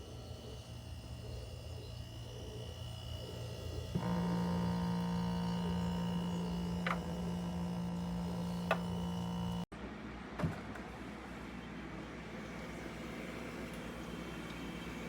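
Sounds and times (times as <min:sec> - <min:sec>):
mini fridge humming: 0:00.0 - 0:09.7.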